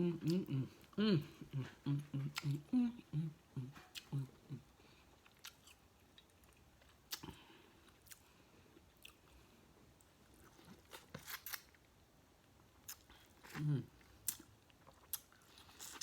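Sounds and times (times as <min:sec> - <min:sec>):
chewing with clicks and crackles: 0:05.1 - 0:11.8, 0:12.8 - 0:16.0.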